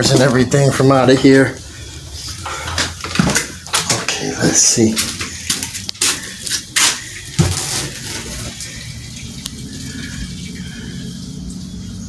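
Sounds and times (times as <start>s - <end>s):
running water: 0.0s - 12.0s
knocks and rustles: 2.5s - 4.2s, 5.0s - 8.6s.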